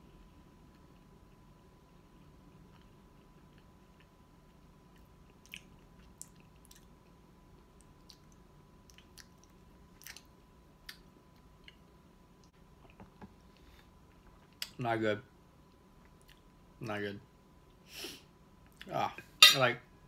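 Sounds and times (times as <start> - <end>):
low room hum: 0.0 - 20.0
quiet chewing of food: 0.1 - 14.8, 15.6 - 16.6.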